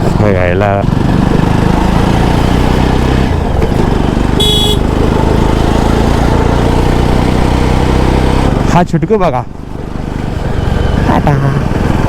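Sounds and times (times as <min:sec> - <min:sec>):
motorcycle engine running: 0:00.0 - 0:12.0
motorcycle horn beep: 0:04.4 - 0:04.9.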